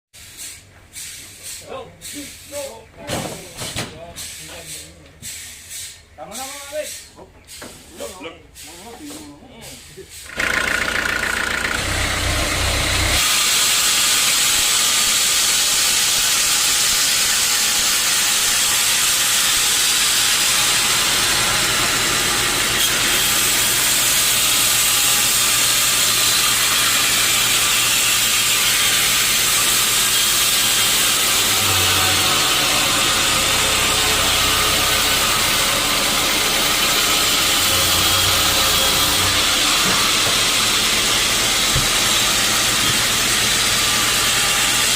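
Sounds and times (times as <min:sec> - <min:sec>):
saw cutting log hiss: 0:00.2 - 0:02.8, 0:04.2 - 0:44.9
low motor hum: 0:10.8 - 0:13.2.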